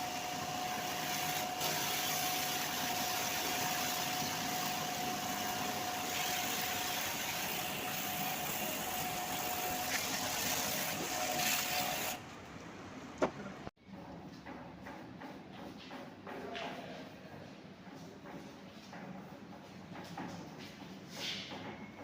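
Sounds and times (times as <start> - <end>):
machine hissing and whining: 0.0 - 12.2.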